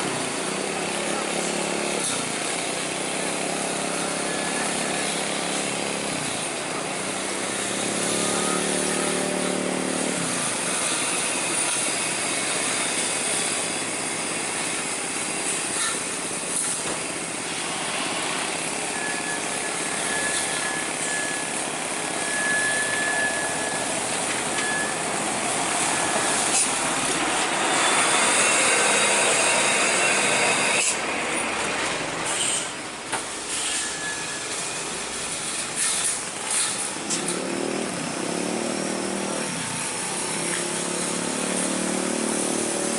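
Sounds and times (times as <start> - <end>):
road traffic with trucks: 0.0 - 42.9.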